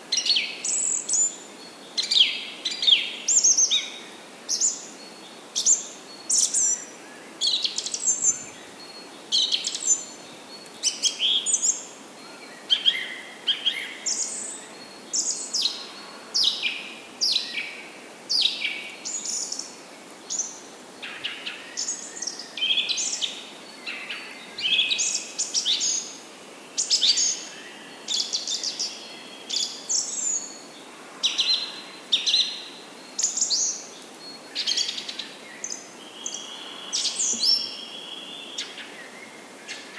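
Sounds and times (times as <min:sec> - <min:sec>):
faint steady hiss: 0:00.0 - 0:39.9
birds chirping and calling: 0:33.2 - 0:39.9.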